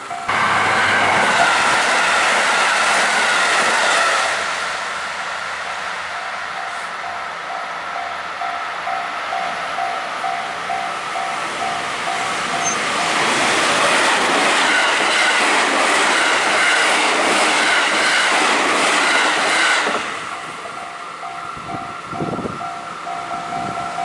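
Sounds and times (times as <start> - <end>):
level-crossing warning bell: 0.0 - 2.4, 5.6 - 13.4, 14.4 - 24.0
electric train passing: 0.0 - 24.0
train wheels clattering on rail joints: 11.6 - 24.0.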